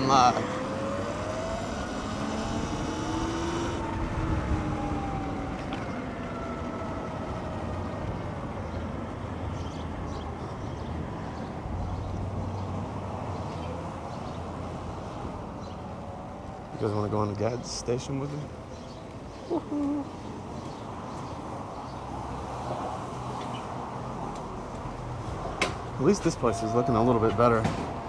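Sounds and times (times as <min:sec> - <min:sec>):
electric motor whining: 0:00.0 - 0:06.0
wind and road noise: 0:00.0 - 0:28.0.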